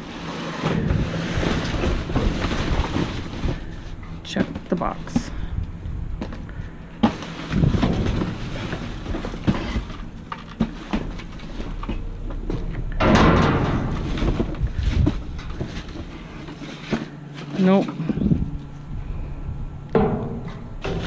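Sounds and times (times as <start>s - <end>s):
cardboard scraping and rustling: 0.0s - 5.2s, 7.0s - 12.7s, 13.6s - 18.2s
steady low hum: 0.0s - 21.0s.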